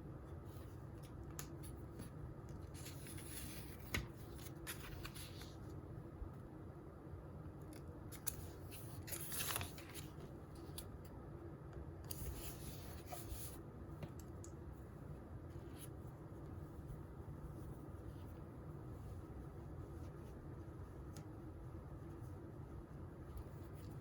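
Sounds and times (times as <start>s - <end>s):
low room hum: 0.0s - 24.0s
paper rustling: 1.0s - 5.7s, 8.1s - 10.9s.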